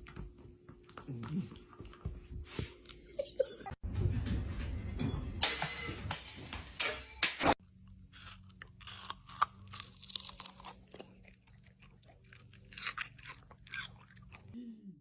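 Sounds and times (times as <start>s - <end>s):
crunchy food chewing: 7.7s - 14.6s.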